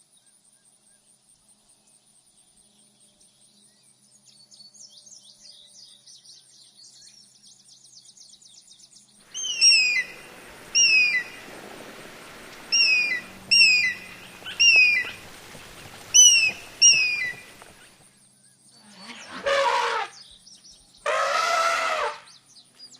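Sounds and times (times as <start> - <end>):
bird twittering and whistling: 9.3 - 17.9.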